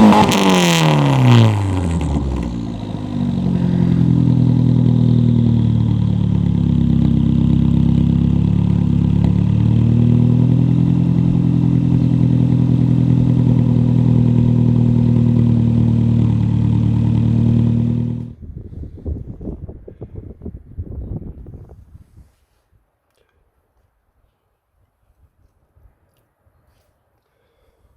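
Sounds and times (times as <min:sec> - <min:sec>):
car engine running: 0:00.0 - 0:18.4.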